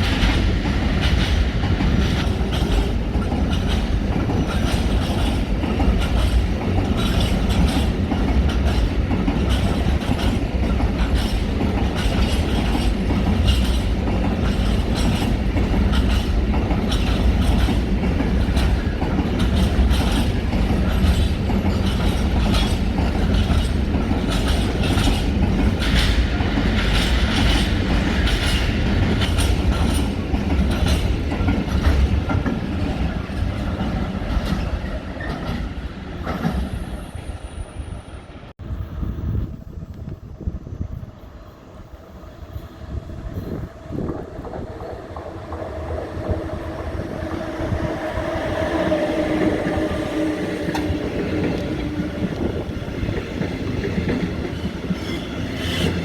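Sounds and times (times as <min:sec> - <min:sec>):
wheels clicking over rail joints: 0:00.0 - 0:36.8
train rumbling on tracks: 0:00.0 - 0:56.0.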